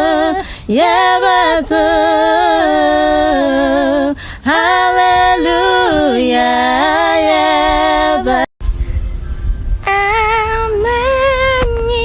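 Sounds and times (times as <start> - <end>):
two voices singing in harmony: 0.0 - 8.5.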